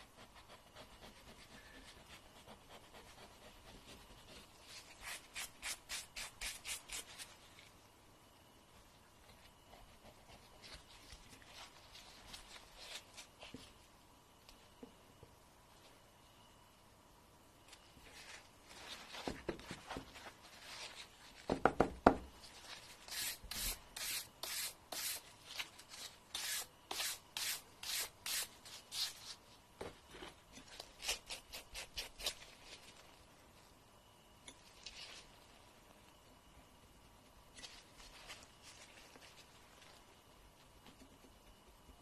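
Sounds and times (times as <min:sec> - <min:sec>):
fingernail filing strokes: 0:00.0 - 0:07.1.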